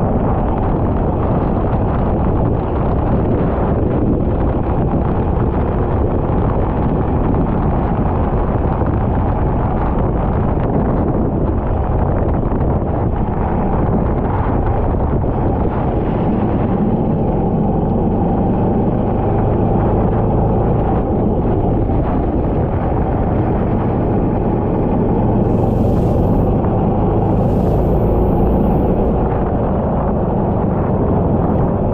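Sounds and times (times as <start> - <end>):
wind buffeting microphone: 0.0 - 31.9
kart engine running: 11.0 - 31.9.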